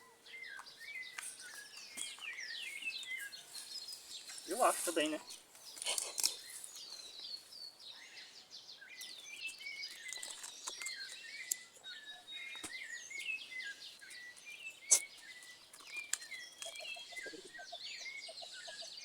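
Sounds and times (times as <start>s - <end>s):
wild birds chirping: 0.0s - 19.0s.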